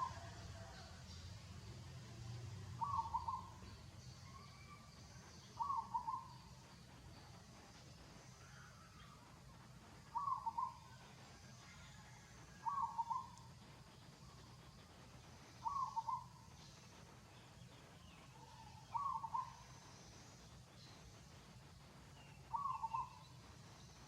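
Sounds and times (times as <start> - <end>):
low background hum: 0.0 - 24.0
bird calling: 2.8 - 4.9, 5.5 - 6.5, 10.1 - 11.0, 12.6 - 13.4, 15.6 - 16.5, 18.1 - 19.8, 22.4 - 23.3.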